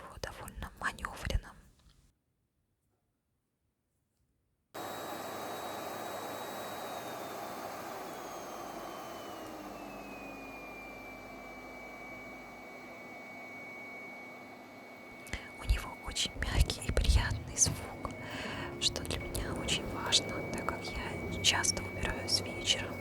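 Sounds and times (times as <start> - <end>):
vacuum cleaner running: 4.8 - 23.0.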